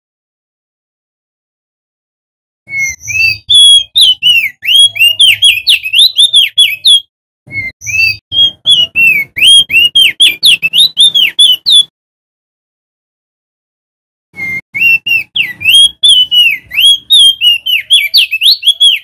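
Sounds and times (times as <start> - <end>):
bird singing whistled notes: 2.7 - 11.9, 14.4 - 19.0.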